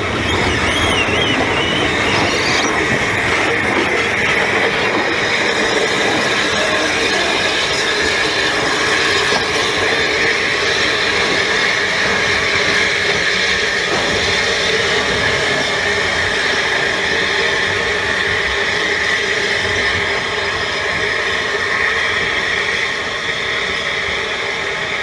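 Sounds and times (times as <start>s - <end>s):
constant high tone: 0.0s - 5.1s
train rolling on rails: 0.0s - 25.0s.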